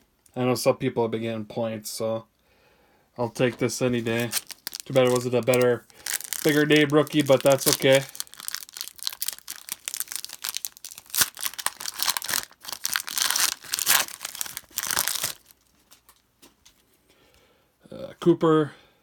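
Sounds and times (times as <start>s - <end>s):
card pack wrapper tearing: 4.0s - 16.2s.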